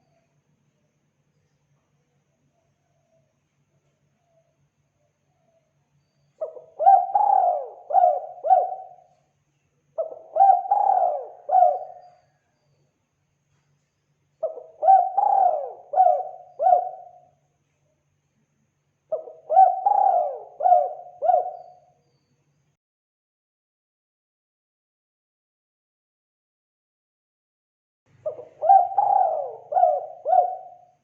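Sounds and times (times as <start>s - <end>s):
dove cooing: 6.4s - 9.1s, 10.0s - 12.3s, 14.4s - 17.3s, 19.1s - 21.8s, 28.2s - 30.9s.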